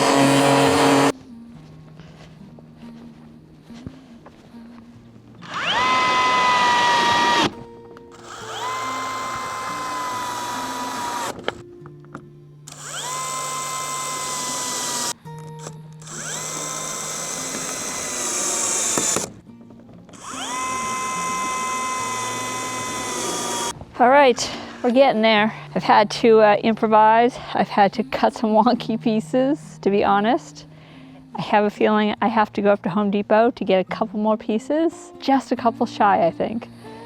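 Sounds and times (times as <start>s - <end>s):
power drill whining: 0.0s - 1.1s, 5.4s - 11.6s, 12.7s - 19.4s, 20.1s - 23.8s.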